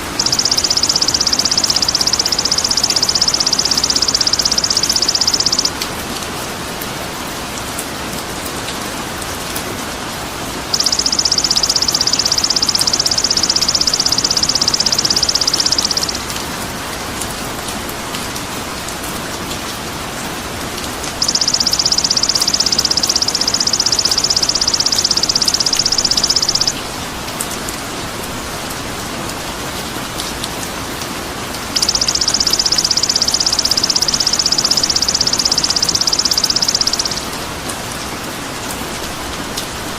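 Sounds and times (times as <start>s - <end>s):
high rapid buzzing bird trill: 0.0s - 5.8s, 10.7s - 16.4s, 21.2s - 26.8s, 31.8s - 37.3s
steady rain-like hiss: 5.0s - 13.6s, 15.4s - 21.7s, 26.7s - 31.8s, 37.0s - 39.9s.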